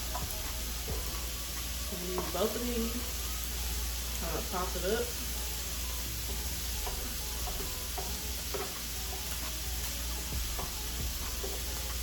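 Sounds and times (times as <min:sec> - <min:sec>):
rice sizzling on griddle: 0:00.0 - 0:12.0
utensil scraping and tapping griddle: 0:06.2 - 0:12.0.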